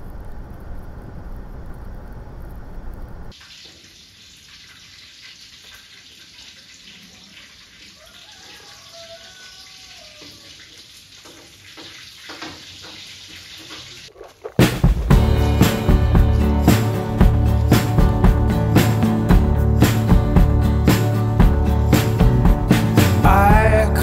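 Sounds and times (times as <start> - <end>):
low rumble: 0.0 - 3.3, 15.0 - 24.0
pork sizzling in a wok: 3.3 - 18.0.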